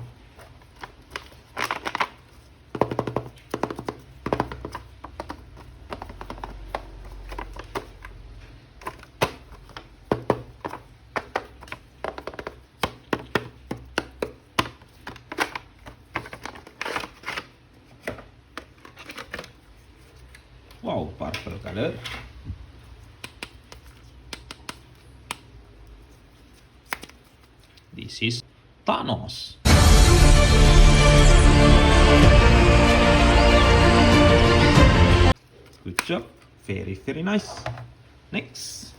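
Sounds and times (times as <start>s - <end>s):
packaging crinkling: 0.2s - 3.5s.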